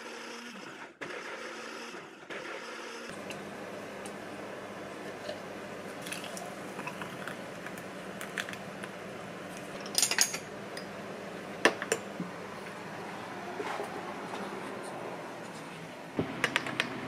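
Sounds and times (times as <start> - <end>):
dishes and utensils clinking: 9.8 - 11.0.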